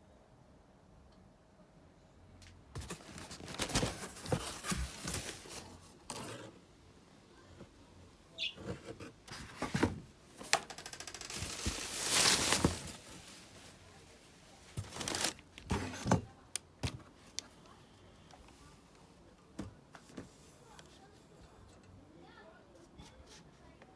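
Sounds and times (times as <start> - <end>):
packaging rustling and crinkling: 2.8 - 6.3, 9.3 - 17.4.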